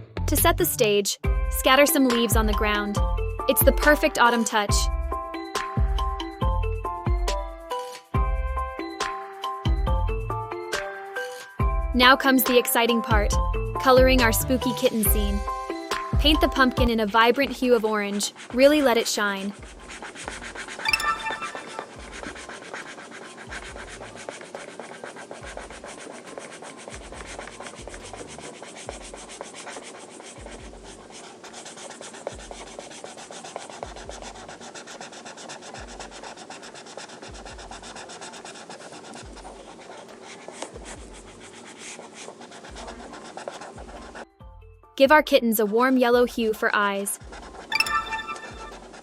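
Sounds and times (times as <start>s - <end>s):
colouring tool scratching on paper: 1.6s - 4.9s, 13.8s - 44.3s, 45.5s - 49.0s.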